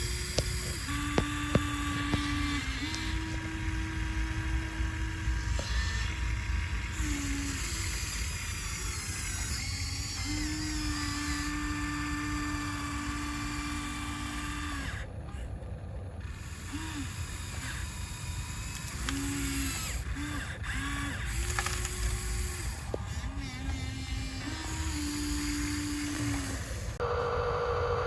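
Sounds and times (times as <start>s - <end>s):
sharp clicks: 0.0s - 5.9s, 18.4s - 27.0s
small electric motors whining: 0.0s - 27.3s.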